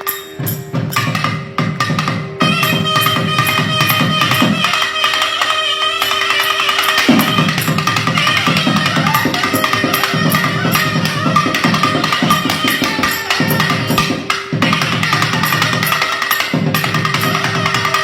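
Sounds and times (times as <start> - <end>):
fast drum strokes: 6.7 - 18.0.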